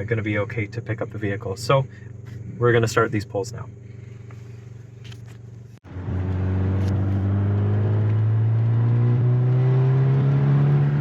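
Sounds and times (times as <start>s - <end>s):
car engine revving at full throttle: 5.9s - 11.0s.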